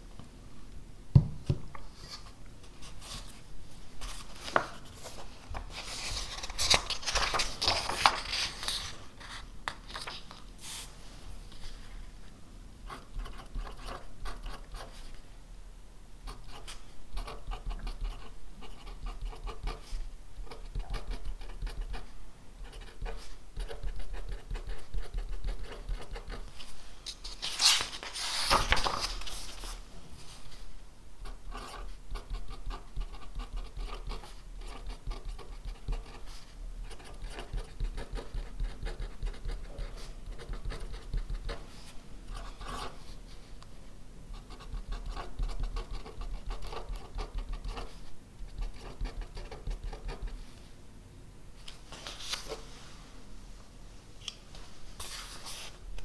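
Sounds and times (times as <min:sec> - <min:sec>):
pen scratching on paper: 0:12.9 - 0:15.0, 0:16.3 - 0:26.4, 0:31.2 - 0:41.7, 0:44.4 - 0:50.4.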